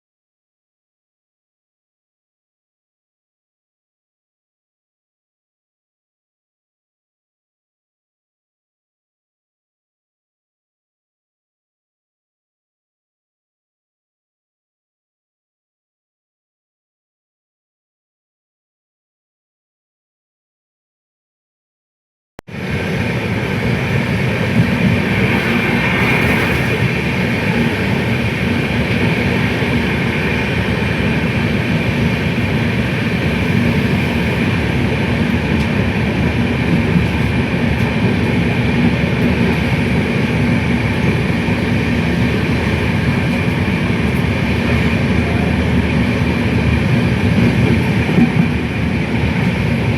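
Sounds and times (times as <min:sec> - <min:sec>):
moving vehicle rumble and hiss: 0:22.6 - 0:49.9.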